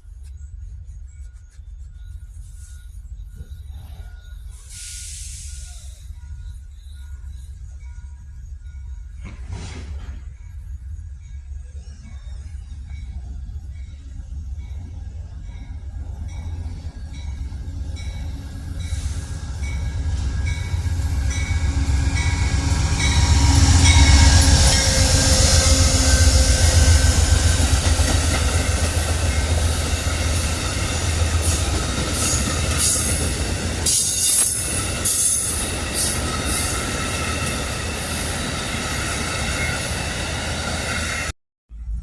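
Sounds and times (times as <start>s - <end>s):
locomotive rumble: 6.3s - 42.0s
train wheels clicking over rail joints: 9.0s - 10.8s.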